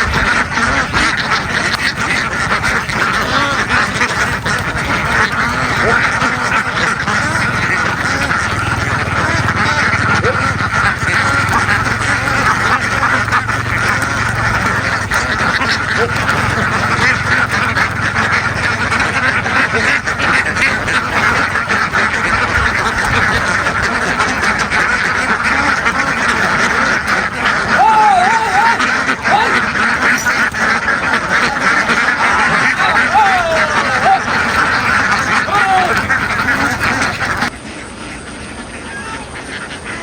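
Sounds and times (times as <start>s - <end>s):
ducks quacking: 0.0s - 40.0s.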